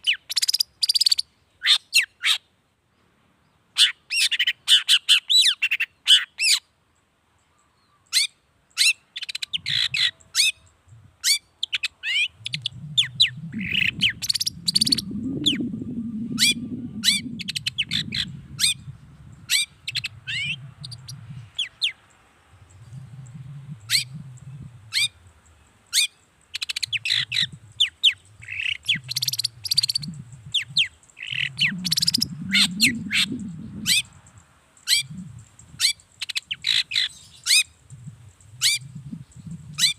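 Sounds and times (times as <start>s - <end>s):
low rumble: 12.4s - 21.6s, 22.5s - 25.4s, 27.0s - 34.4s.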